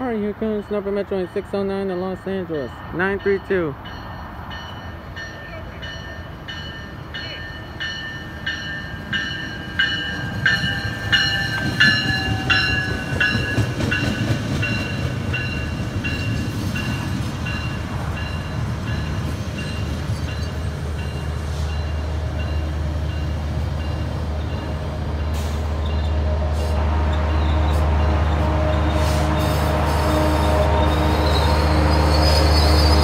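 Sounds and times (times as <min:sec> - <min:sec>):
low diesel locomotive drone: 0:00.0 - 0:33.0
rumble of train coaches rolling: 0:00.0 - 0:33.0
train bell ringing: 0:02.6 - 0:26.1.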